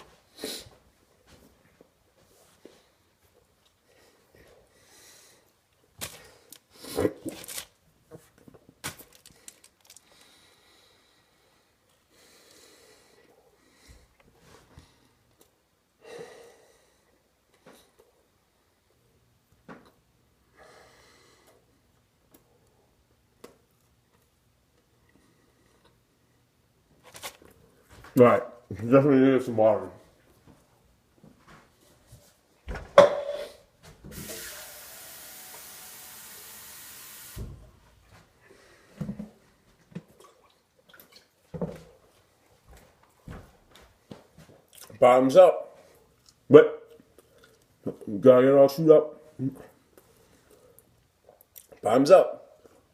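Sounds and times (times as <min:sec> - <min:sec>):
man breathing through nose: 0:09.3 - 0:15.2
man chewing food: 0:39.8 - 0:43.3, 0:44.3 - 0:45.0, 0:45.9 - 0:47.9, 0:49.6 - 0:51.8.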